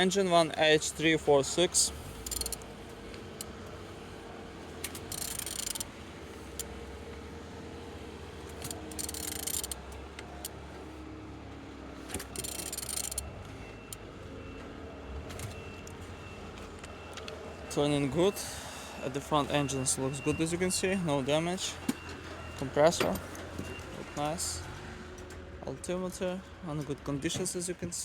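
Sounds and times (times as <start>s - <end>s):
wrench ratcheting and scraping: 2.1s - 2.6s, 4.8s - 5.9s, 8.5s - 9.8s, 12.1s - 13.2s.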